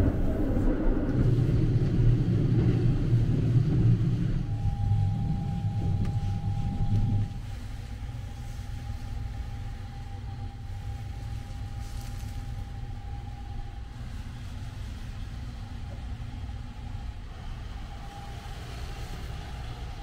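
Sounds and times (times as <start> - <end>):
train rumble inside cabin: 0.0 - 20.0
faint high tone: 4.4 - 7.5.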